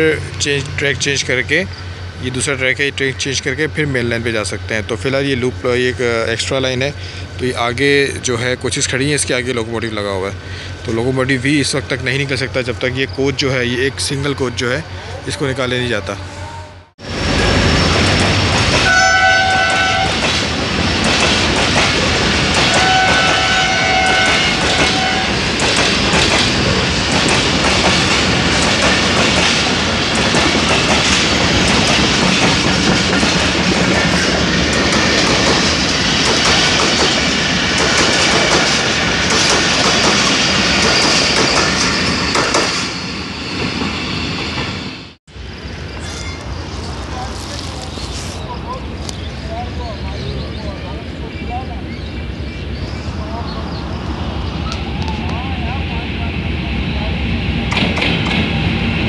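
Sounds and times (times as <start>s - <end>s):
train wheels clattering: 17.4s - 43.0s
train horn: 18.8s - 20.2s, 22.7s - 25.4s.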